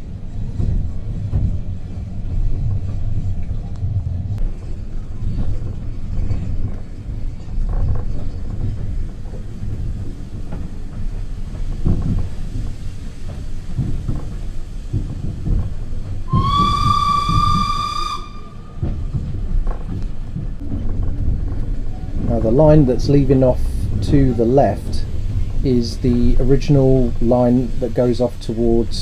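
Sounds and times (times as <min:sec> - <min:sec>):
railway carriage rumbling: 0:00.0 - 0:29.0
locomotive whistle: 0:16.3 - 0:19.0.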